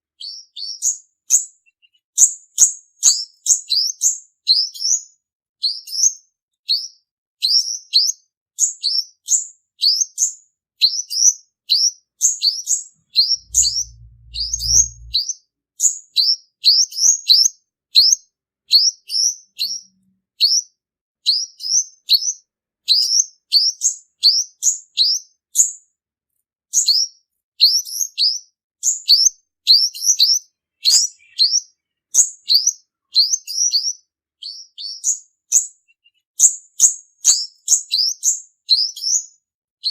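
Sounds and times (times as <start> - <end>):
bird chirping song: 0.0 - 25.8, 26.7 - 39.9
low rumble: 13.4 - 15.2.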